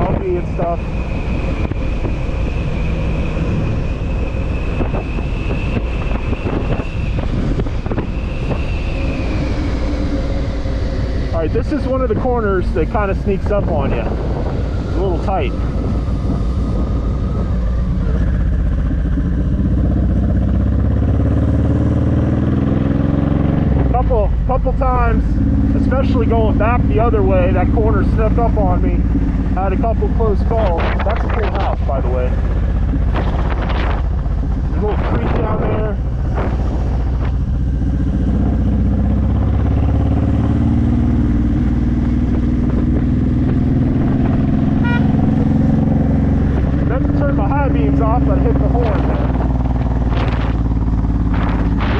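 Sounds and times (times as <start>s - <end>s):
motorcycle engine running: 4.0s - 51.9s
motorcycle horn toot: 44.8s - 45.2s.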